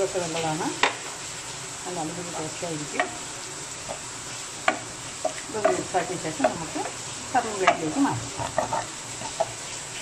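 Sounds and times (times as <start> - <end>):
chicken sizzling in a pan: 0.0 - 10.0
spatula knocking against pan: 4.6 - 6.8, 7.6 - 9.5.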